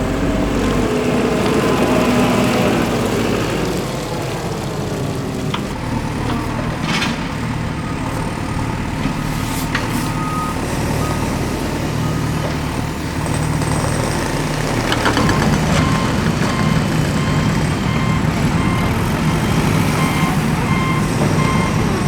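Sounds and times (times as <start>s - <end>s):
high reversing beeps: 10.1s - 12.2s, 15.3s - 22.0s.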